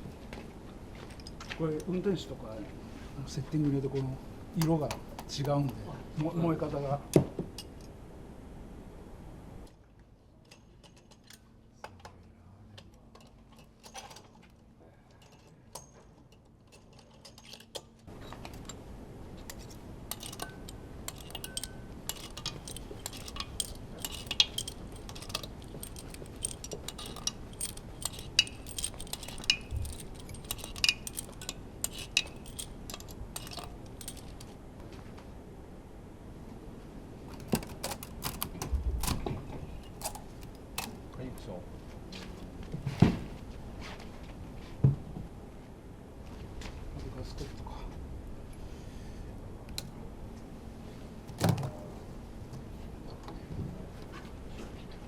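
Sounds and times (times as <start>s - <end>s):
metal clinks of hand tools: 20.1s - 34.5s.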